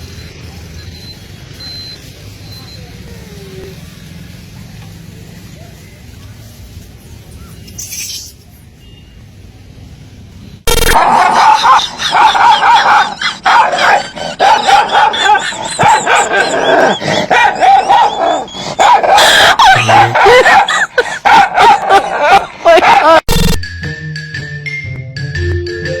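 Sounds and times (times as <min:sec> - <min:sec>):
dog barking and yipping: 0:10.9 - 0:23.2
dog high-pitched cries: 0:10.9 - 0:23.2.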